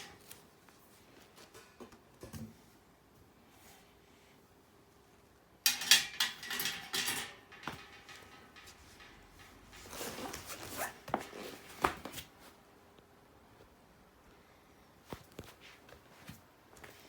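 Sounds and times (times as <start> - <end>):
metal clatter: 5.7 - 10.2
metal parts clanking and rattling: 5.7 - 10.3.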